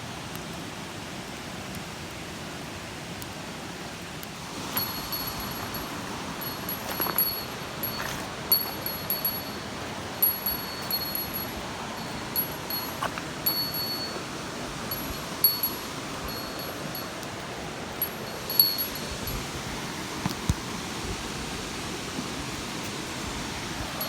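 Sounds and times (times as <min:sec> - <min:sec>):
waterfall and stream rushing: 0:00.0 - 0:24.0
small bell ringing: 0:04.7 - 0:17.2, 0:18.0 - 0:19.4.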